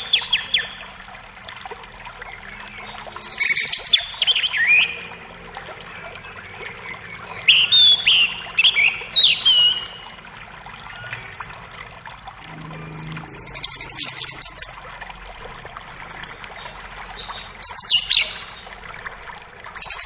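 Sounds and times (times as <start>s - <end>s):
creek running water: 0.0s - 20.0s
forest birds singing: 2.3s - 10.2s, 12.5s - 18.7s.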